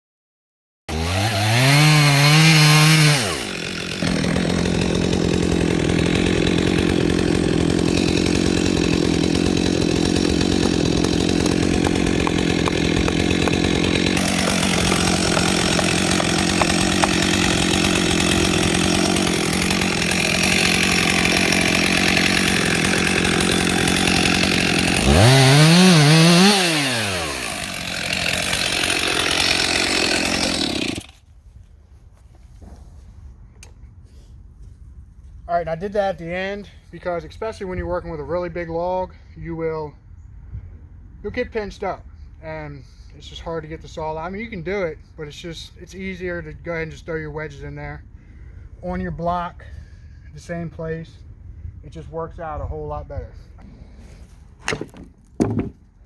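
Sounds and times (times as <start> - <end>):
chainsaw cutting through log: 0.9 - 31.2, 53.6 - 55.8.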